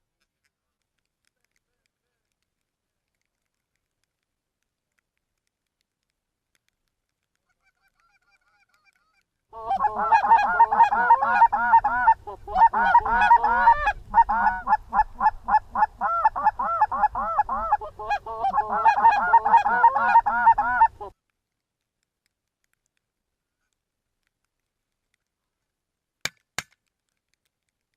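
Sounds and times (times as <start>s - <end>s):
goose honking and clucking: 7.4s - 21.2s
low wind rumble: 11.4s - 18.9s.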